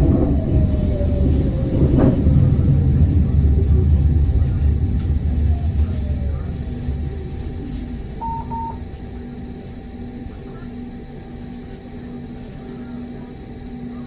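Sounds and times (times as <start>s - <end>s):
tram running rumble: 0.0s - 14.0s
short high beeps: 8.2s - 8.8s.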